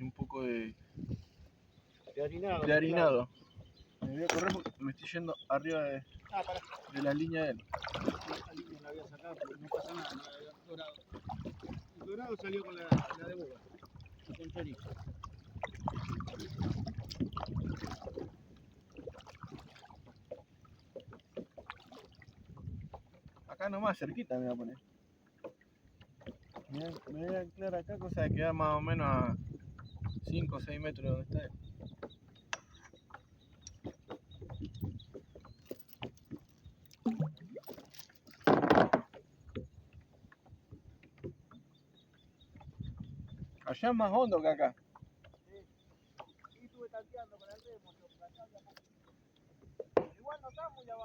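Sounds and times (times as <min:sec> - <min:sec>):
kayak paddle strokes: 0:00.9 - 0:23.6, 0:24.2 - 0:28.0, 0:31.5 - 0:51.0
knocks on the hull: 0:04.0 - 0:04.8, 0:12.9 - 0:13.3, 0:38.4 - 0:39.7, 0:49.8 - 0:50.3
water splashing and dripping: 0:06.2 - 0:23.6, 0:25.4 - 0:27.5, 0:31.8 - 0:39.8.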